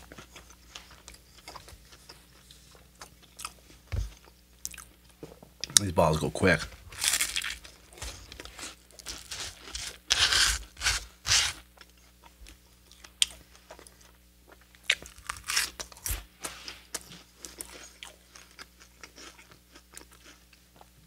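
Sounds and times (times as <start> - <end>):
crunchy bites: 7.0 - 11.6, 14.8 - 16.2.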